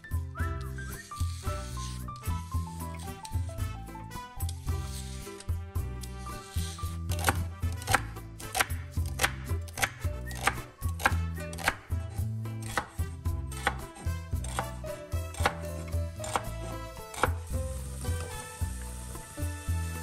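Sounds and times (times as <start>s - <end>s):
onions sizzling in oil: 1.0s - 2.1s, 16.2s - 20.0s
knife chopping on wooden board: 6.0s - 11.9s, 12.6s - 17.5s.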